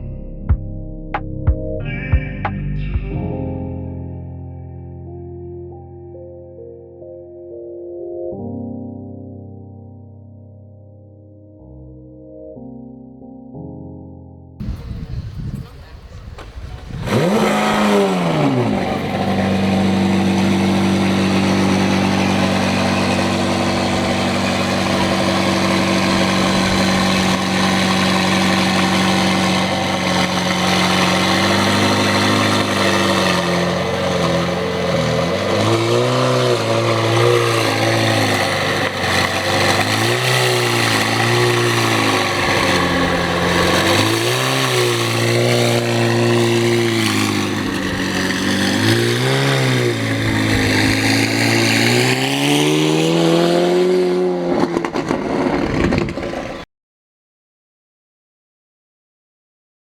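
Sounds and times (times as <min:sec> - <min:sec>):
engine revving: 0:14.6 - 0:56.6
vehicle engine starting and idling: 0:14.6 - 0:56.6.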